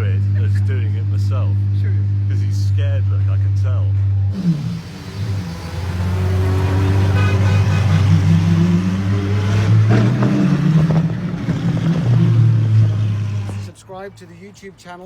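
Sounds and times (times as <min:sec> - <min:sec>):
car engine running loudly: 0:04.3 - 0:13.8.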